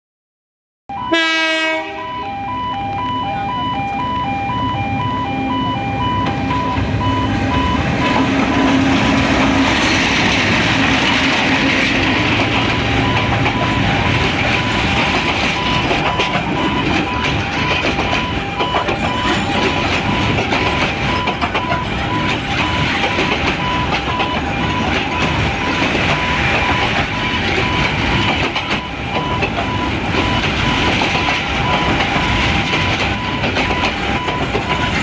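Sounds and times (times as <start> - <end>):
train horn note: 0.9 - 2.5
level crossing alarm beeping: 0.9 - 35.0
train rumble and wheel noise: 1.0 - 35.0.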